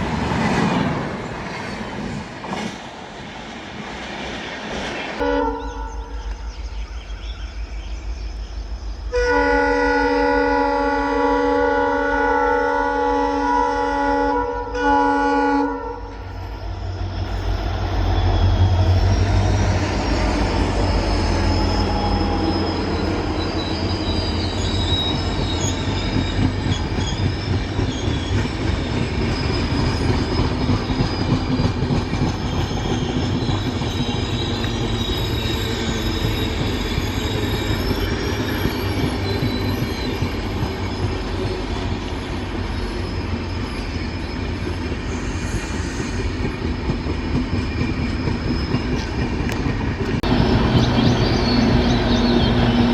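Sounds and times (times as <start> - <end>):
train rumbling past: 0.0 - 52.9
locomotive horn: 5.2 - 6.1, 9.1 - 16.2
high wavering wheel squeal: 16.1 - 52.9.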